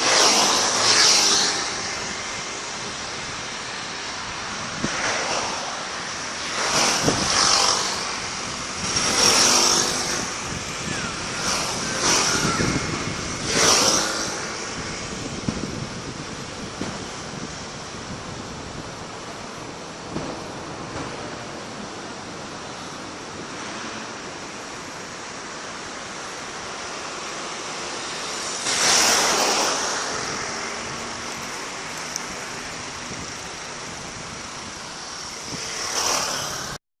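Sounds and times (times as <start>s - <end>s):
fireworks hissing: 0.0s - 18.2s, 22.5s - 36.8s
fireworks bursts: 28.6s - 32.0s.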